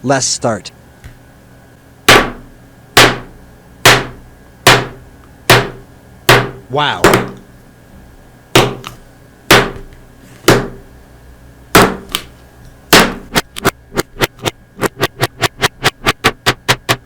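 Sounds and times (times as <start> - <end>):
sharp knocks: 2.1 - 7.4, 8.6 - 8.8, 9.5 - 9.9, 10.5 - 10.8, 11.8 - 12.2, 12.9 - 17.0.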